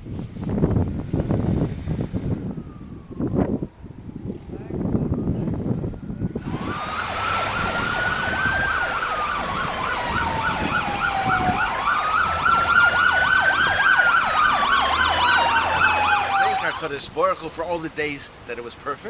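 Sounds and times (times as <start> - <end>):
siren wailing: 2.4 - 17.0
siren yelping rapidly: 6.2 - 17.0.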